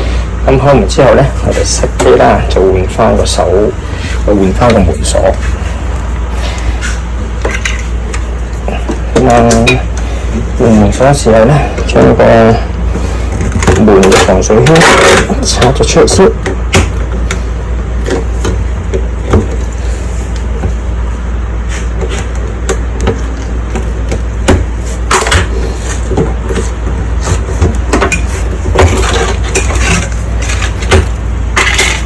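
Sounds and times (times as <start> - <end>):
steady low hum: 0.0 - 32.0
tools clicking and knocking: 7.4 - 10.0, 22.1 - 32.0.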